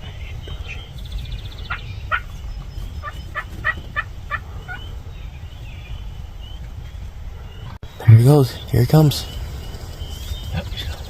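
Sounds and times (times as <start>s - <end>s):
turkeys calling: 0.0s - 6.7s.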